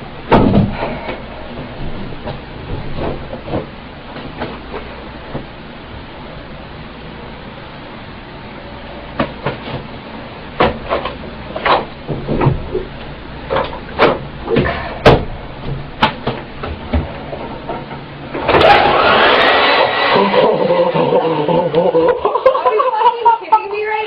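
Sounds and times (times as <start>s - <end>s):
hair dryer blowing air: 18.5s - 21.6s.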